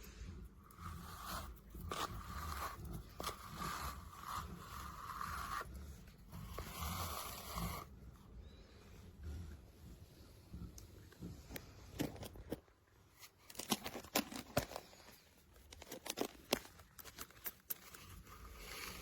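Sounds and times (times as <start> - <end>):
brush stroking dog's coat: 0.8 - 7.9.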